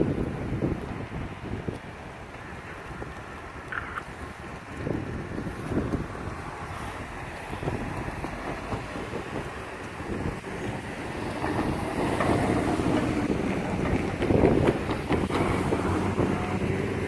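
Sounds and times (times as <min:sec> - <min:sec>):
wind buffeting microphone: 0:00.0 - 0:17.0
freight train rumbling past: 0:04.9 - 0:17.0.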